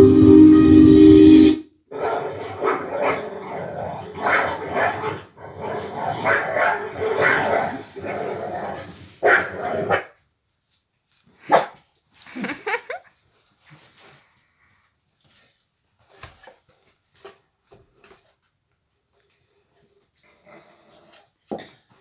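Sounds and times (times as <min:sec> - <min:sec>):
dog barking: 0:01.9 - 0:10.1, 0:11.5 - 0:11.8
dog whining: 0:02.0 - 0:10.0.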